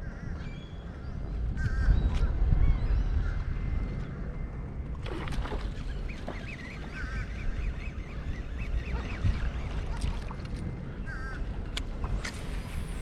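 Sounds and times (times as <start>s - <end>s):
birds calling: 5.1s - 10.3s.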